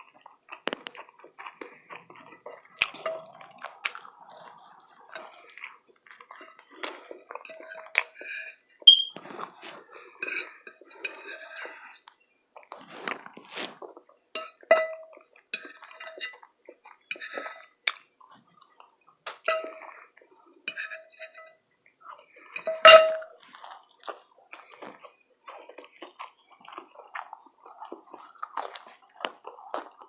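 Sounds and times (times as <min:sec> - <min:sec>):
chewing and mouth sounds: 0:00.0 - 0:30.0
utensil clinking on plate: 0:14.4 - 0:16.3, 0:19.5 - 0:19.8, 0:22.6 - 0:23.4.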